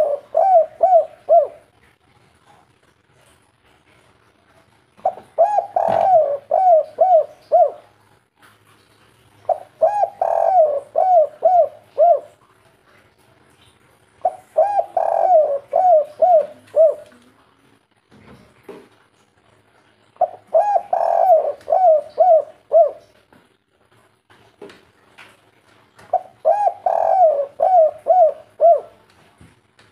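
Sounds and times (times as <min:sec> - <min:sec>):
dove cooing: 0:00.0 - 0:01.7, 0:05.0 - 0:08.0, 0:09.5 - 0:12.4, 0:14.2 - 0:17.2, 0:20.2 - 0:23.2, 0:26.1 - 0:29.0.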